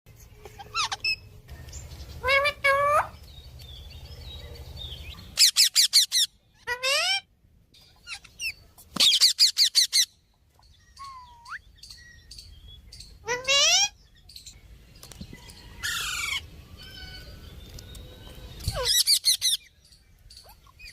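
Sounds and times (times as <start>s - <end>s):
parrot calling: 0.4s - 1.4s, 2.2s - 3.2s, 5.2s - 7.3s, 13.1s - 14.0s.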